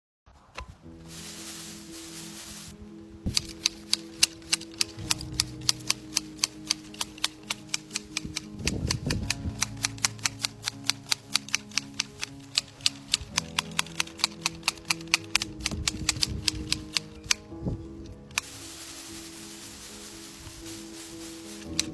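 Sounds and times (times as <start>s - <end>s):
rapid sharp clicks: 3.3s - 17.4s.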